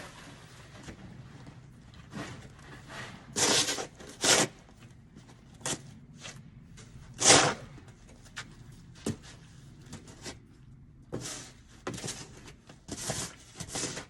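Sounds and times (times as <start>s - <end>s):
snow shovel scraping wet snow: 2.2s - 4.6s, 7.2s - 7.7s, 12.9s - 14.0s.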